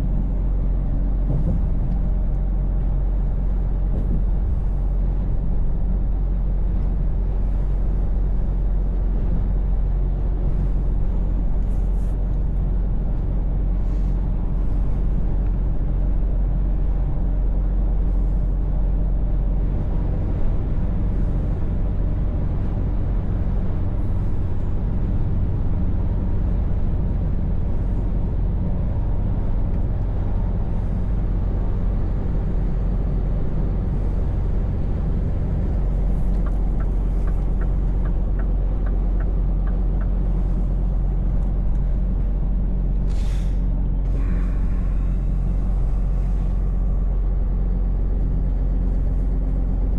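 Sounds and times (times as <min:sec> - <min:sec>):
truck engine running: 0:00.0 - 0:49.9
air brakes hissing: 0:43.0 - 0:46.8.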